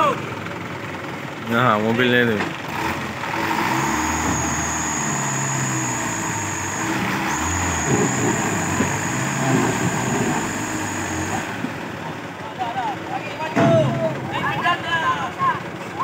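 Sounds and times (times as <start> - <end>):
truck engine running: 0.0 - 16.0
thin high whine: 3.8 - 11.6.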